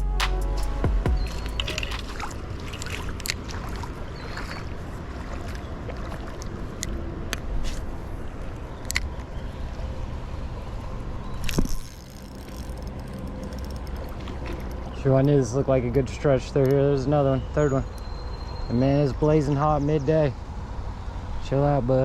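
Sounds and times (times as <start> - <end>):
creek water running: 1.1 - 8.7, 11.5 - 17.9.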